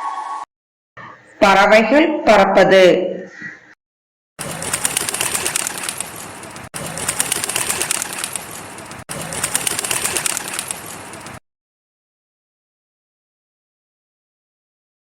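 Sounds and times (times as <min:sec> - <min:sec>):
bird wings flapping: 0:04.4 - 0:11.4.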